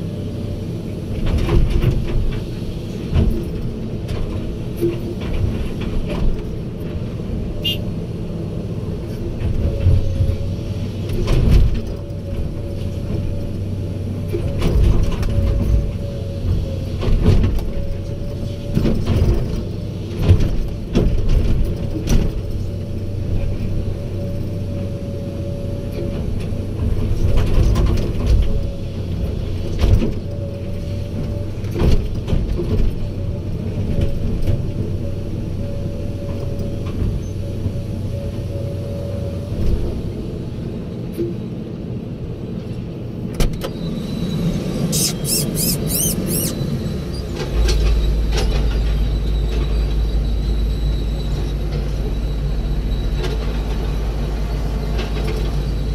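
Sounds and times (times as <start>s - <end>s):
heavy diesel machinery running: 0.0s - 55.9s.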